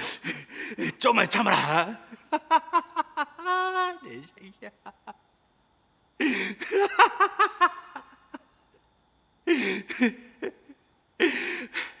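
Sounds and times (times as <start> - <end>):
man gasping laugh-like sobs: 0.2 - 0.9, 6.2 - 7.0, 9.5 - 12.0.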